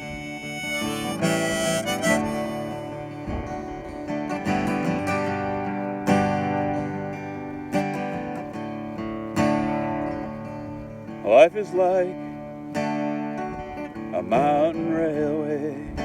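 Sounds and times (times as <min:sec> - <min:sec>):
harmonica phrase: 0:00.0 - 0:06.9
acoustic guitar strumming chords: 0:00.0 - 0:16.0.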